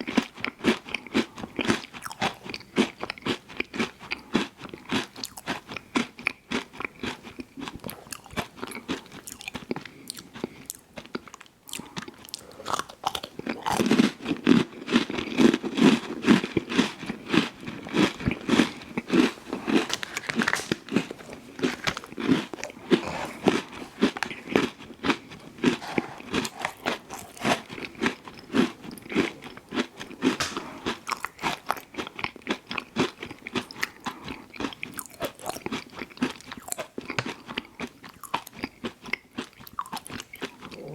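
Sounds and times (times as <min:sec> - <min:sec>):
person chewing crunchy food: 0:00.0 - 0:40.9.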